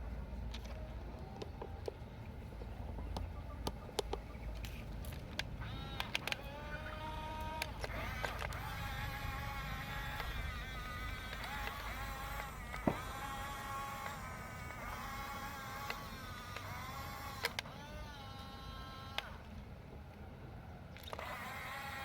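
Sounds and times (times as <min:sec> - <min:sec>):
small electric motors whining: 0:00.0 - 0:19.7, 0:21.0 - 0:22.0
sharp clicks: 0:02.6 - 0:17.8.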